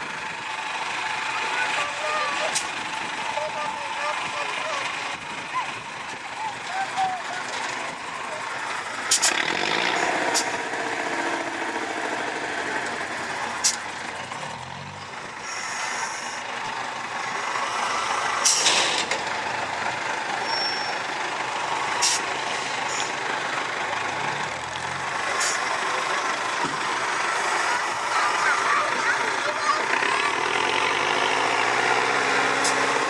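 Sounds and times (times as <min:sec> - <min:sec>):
truck engine running: 0:00.0 - 0:33.0
air brake hiss: 0:18.4 - 0:18.8, 0:22.0 - 0:22.3.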